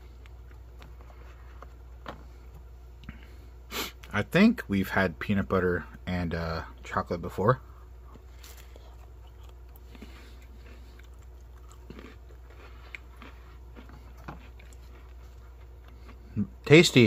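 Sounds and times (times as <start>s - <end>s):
person chewing cracker: 0.0s - 3.2s, 7.9s - 16.5s
steady low hum: 0.0s - 17.0s.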